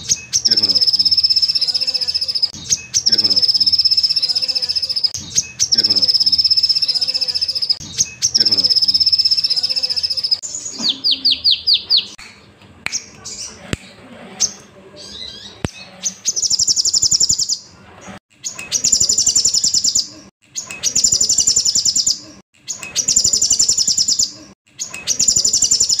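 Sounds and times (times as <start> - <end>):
sunbird trilling song: 0.0 - 12.2, 18.4 - 26.0.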